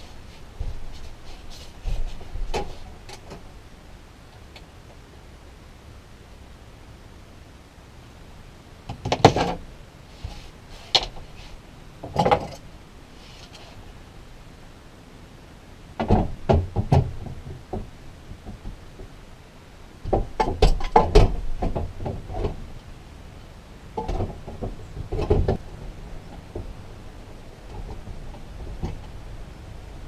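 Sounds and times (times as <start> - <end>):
knocks and clatter of materials: 12.0 - 12.6, 16.0 - 19.1, 20.0 - 22.6, 24.0 - 26.8.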